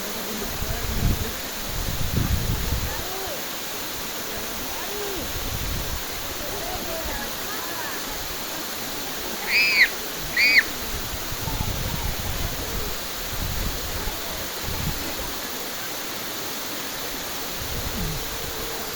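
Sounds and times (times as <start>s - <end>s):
waterfall rushing: 0.0s - 18.9s
high arching calls: 7.2s - 11.4s.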